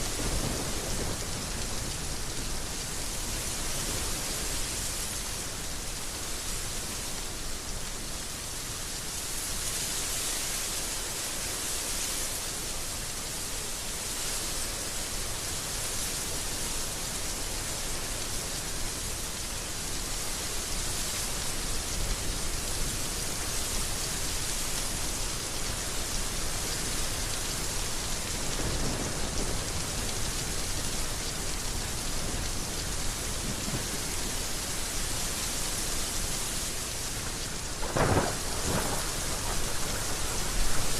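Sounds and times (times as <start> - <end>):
heavy rain falling: 0.0 - 40.9
thunder rumbling: 37.2 - 40.9.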